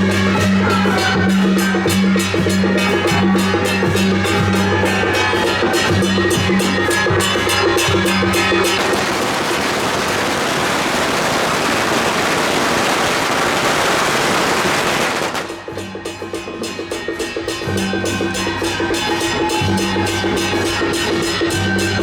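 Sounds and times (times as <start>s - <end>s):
procession band with reed horns and drums: 0.0s - 22.0s
dense continuous crackling noise: 8.6s - 15.6s.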